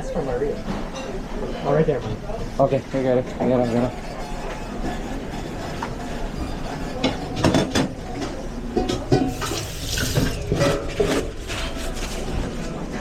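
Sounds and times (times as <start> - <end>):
dishes and pans clattering: 3.4 - 12.7.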